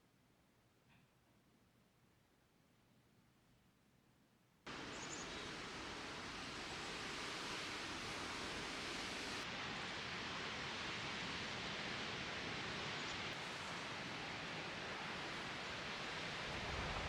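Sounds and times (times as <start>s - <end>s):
steady rushing hiss: 4.7s - 17.0s.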